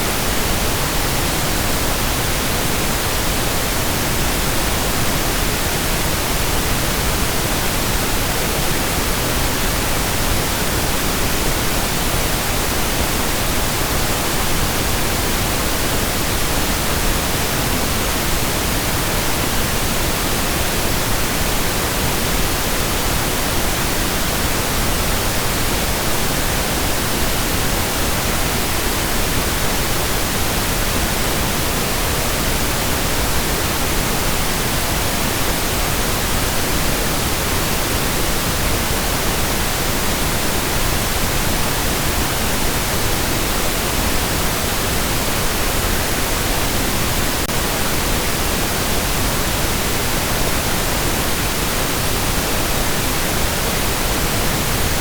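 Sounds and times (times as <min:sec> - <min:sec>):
pink noise hiss: 0:00.0 - 0:55.0.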